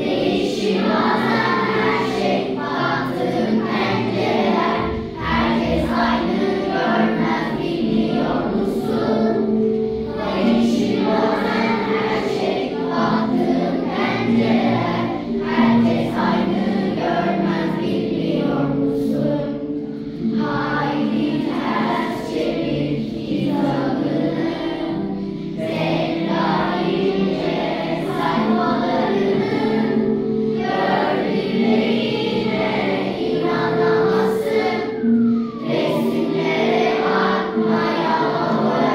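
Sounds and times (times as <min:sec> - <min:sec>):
children singing as a choir: 0:00.0 - 0:38.9
music: 0:00.0 - 0:38.9.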